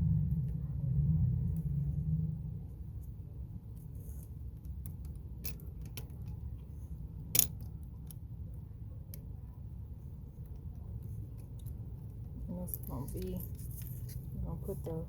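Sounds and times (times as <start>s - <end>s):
low steady rumble: 0.0s - 15.0s
small metal parts clicking: 4.6s - 6.4s, 7.3s - 8.2s.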